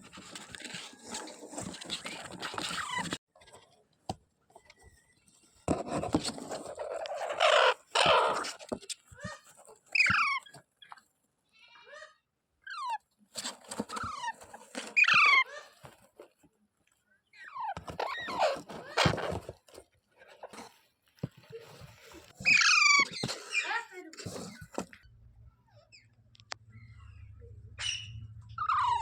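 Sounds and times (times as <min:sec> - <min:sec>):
parakeet screeching: 0:07.0 - 0:08.5, 0:10.0 - 0:10.5, 0:15.0 - 0:15.6, 0:22.4 - 0:23.8, 0:27.8 - 0:29.0
parakeet chirping: 0:22.4 - 0:23.7, 0:26.7 - 0:29.0.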